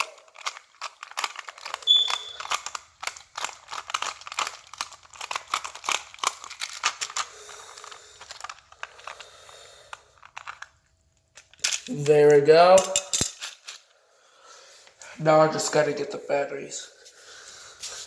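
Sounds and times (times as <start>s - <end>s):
plastic packaging crinkling: 0.0s - 12.7s
brief squeak: 1.8s - 2.5s.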